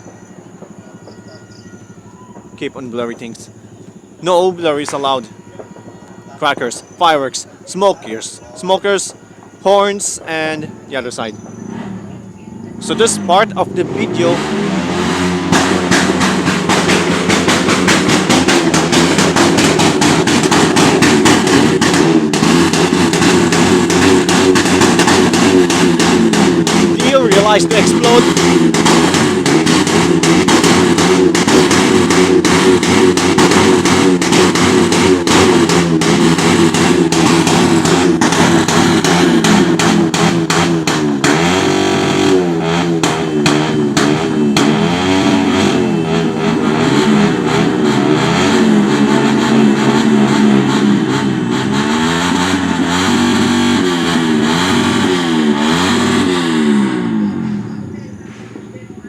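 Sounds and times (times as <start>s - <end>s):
firecrackers crackling: 0.0s - 46.4s
vehicle engines revving: 0.0s - 59.0s.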